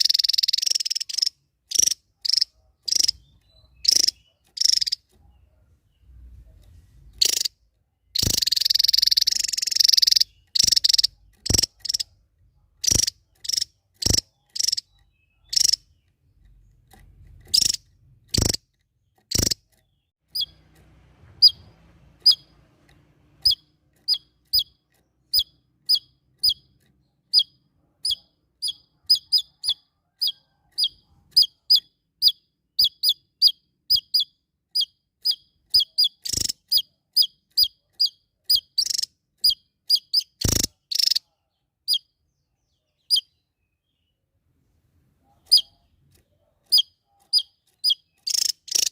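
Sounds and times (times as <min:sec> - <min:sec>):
bird rattling call: 0:00.0 - 0:05.1, 0:07.2 - 0:07.5, 0:08.2 - 0:12.1, 0:12.8 - 0:14.9, 0:17.4 - 0:18.6, 0:19.3 - 0:19.6, 0:34.8 - 0:41.2, 0:46.7 - 0:48.9
bird high chirps: 0:00.0 - 0:20.7, 0:21.3 - 0:22.7, 0:23.4 - 0:44.2, 0:45.2 - 0:48.9.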